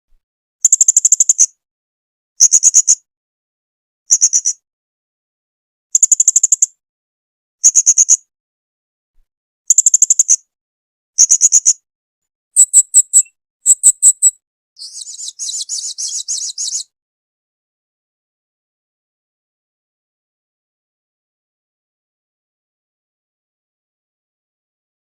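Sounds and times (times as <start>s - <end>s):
parrot chattering trill: 12.6s - 16.8s
parrot chirping: 12.6s - 16.8s.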